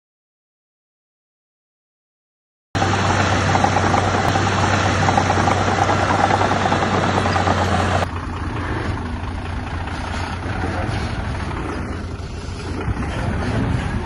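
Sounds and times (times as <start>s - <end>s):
heavy diesel engine running: 2.8s - 14.0s.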